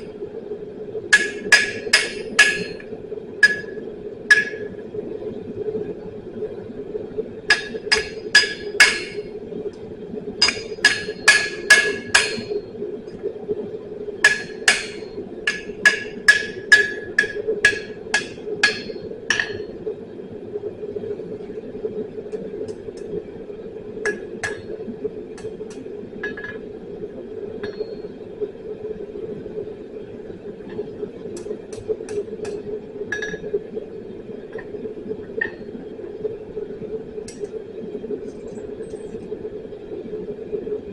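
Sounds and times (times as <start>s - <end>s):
steady hum: 0.0s - 40.9s
hammer striking anvil: 1.2s - 2.8s, 3.4s - 3.7s, 4.3s - 4.6s, 7.5s - 9.2s, 10.4s - 12.5s, 14.3s - 19.6s.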